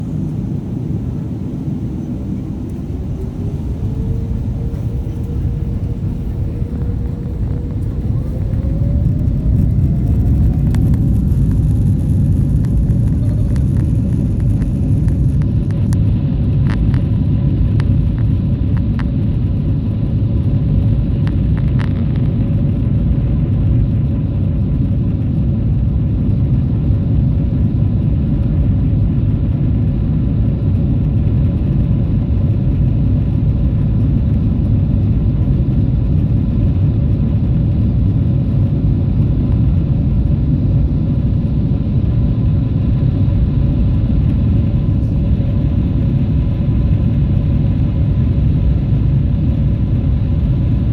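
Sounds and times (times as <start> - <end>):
jet engines roaring at takeoff: 0.0 - 50.9.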